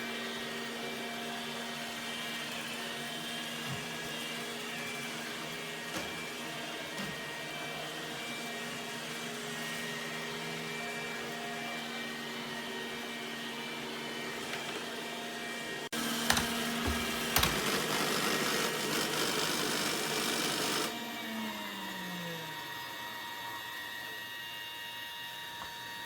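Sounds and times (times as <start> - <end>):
robot vacuum motor hum: 0.0 - 26.0
motor winding down: 16.0 - 24.1.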